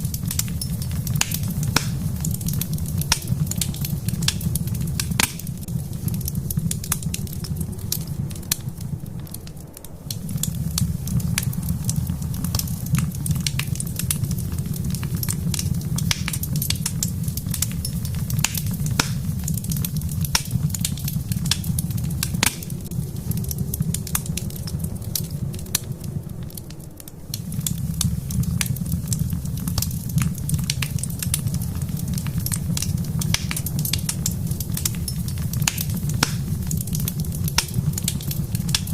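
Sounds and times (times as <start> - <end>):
low fire rumble: 0.0 - 38.9
wood fire crackling: 0.0 - 38.9.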